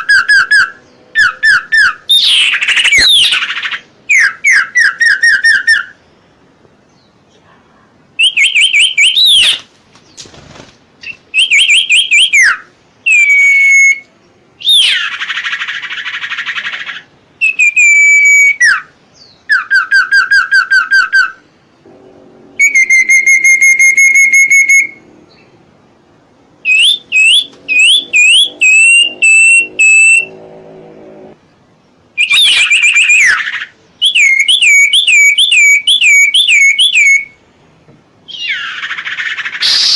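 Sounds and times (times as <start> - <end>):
bird whistling calls: 0.0 - 6.0, 8.2 - 9.7, 11.0 - 21.4, 22.6 - 25.5, 26.6 - 30.4, 32.2 - 37.4, 38.3 - 39.9
bird harsh hissing call: 38.5 - 39.9.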